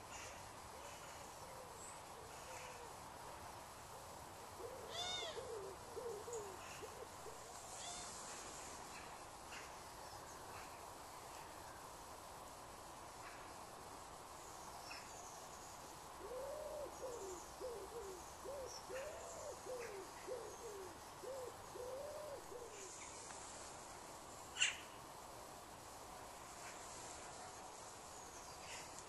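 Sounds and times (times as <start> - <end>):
faint outdoor background noise: 0.0 - 29.0
bird hooting: 4.6 - 8.2, 16.2 - 23.1.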